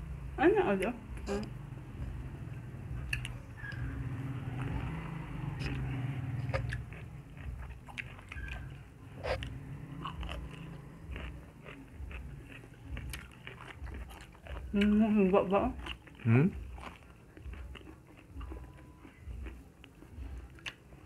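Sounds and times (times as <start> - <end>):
close chewing and biting: 3.0 - 21.0
biting into vegetable pod: 5.6 - 14.9.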